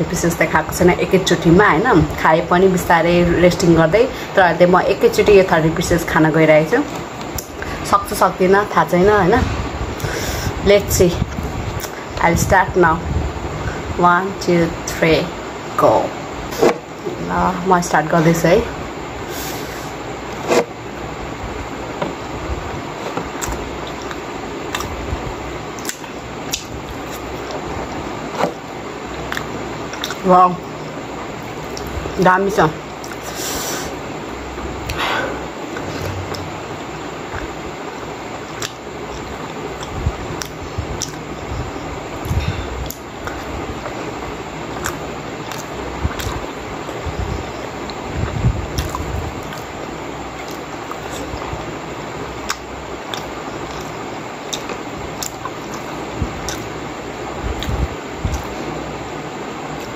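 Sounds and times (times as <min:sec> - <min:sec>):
background hiss: 0:00.0 - 0:59.9
person chewing: 0:23.0 - 0:25.0, 0:29.3 - 0:30.2, 0:44.7 - 0:46.5, 0:48.2 - 0:49.7, 0:52.4 - 0:56.8
mouth clicks: 0:29.3 - 0:30.2, 0:38.5 - 0:41.2, 0:44.7 - 0:46.4, 0:47.8 - 0:49.7, 0:52.4 - 0:56.8, 0:57.5 - 0:58.6.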